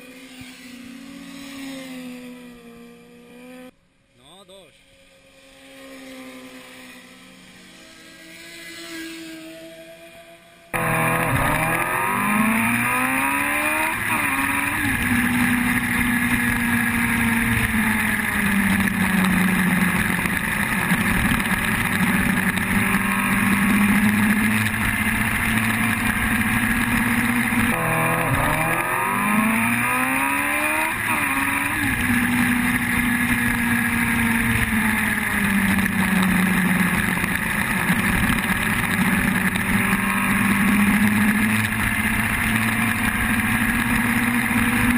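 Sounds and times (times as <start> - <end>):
sport bike engine revving: 10.7 - 44.9.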